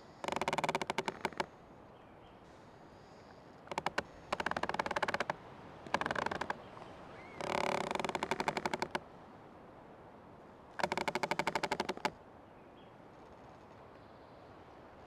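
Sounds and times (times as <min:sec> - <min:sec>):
tree creaking: 0:00.0 - 0:01.6, 0:02.5 - 0:09.1, 0:10.7 - 0:12.2.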